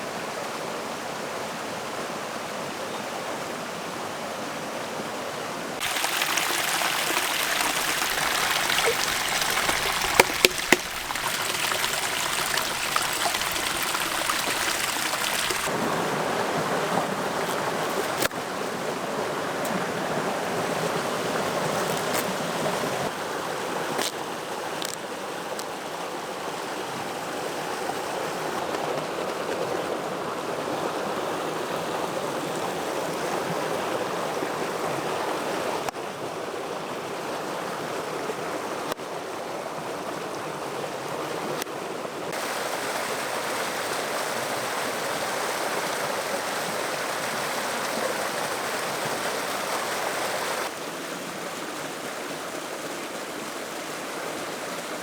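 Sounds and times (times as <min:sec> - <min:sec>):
stream rushing: 0:03.6 - 0:55.0.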